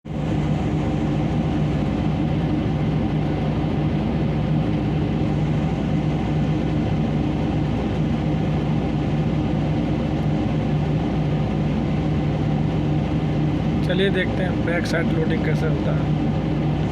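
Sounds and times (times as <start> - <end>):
diesel engine humming: 0.1 - 16.9.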